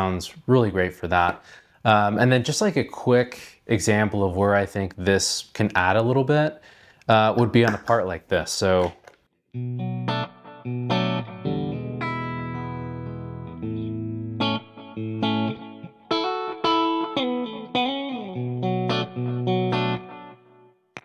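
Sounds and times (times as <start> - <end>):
electric guitar lightly driven tone: 9.6 - 20.7.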